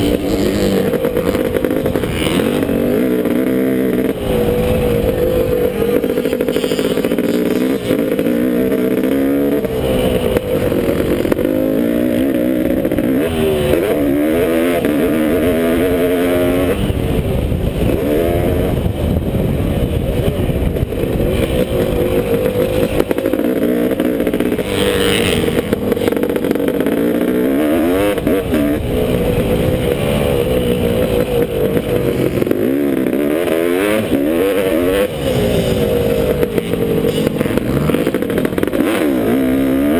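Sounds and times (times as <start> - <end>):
motocross engine revving: 0.0 - 39.9
wind and track noise: 0.0 - 39.9.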